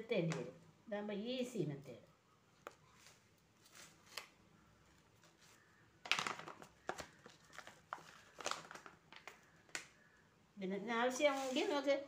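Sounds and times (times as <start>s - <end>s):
plastic packet crinkling: 6.0s - 10.1s.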